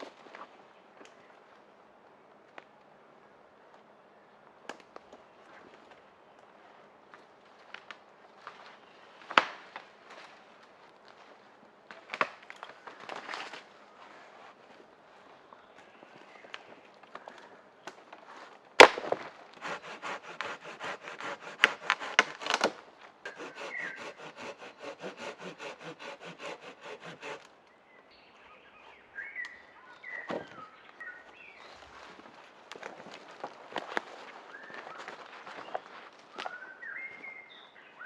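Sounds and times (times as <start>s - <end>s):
sharp woody crack: 18.8s - 27.4s
saw cutting wooden branch: 19.6s - 27.5s.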